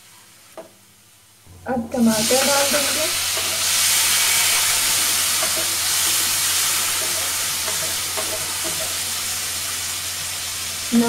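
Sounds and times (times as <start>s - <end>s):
tomatoes sizzling in hot oil: 0.4s - 11.0s
spatula stirring in a pan: 2.3s - 10.6s.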